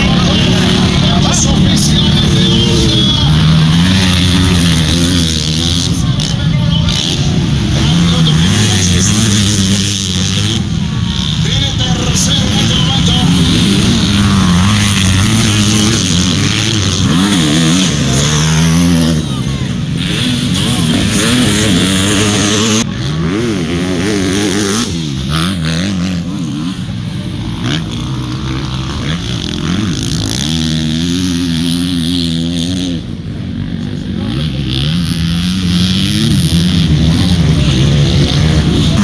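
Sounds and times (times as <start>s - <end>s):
motorcycle engines revving: 0.0s - 39.0s.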